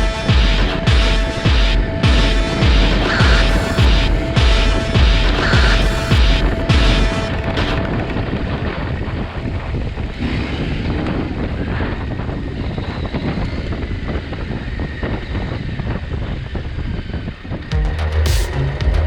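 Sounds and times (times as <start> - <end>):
motorcycle engine running: 0.0 - 7.7
wind noise on microphone: 0.0 - 17.8.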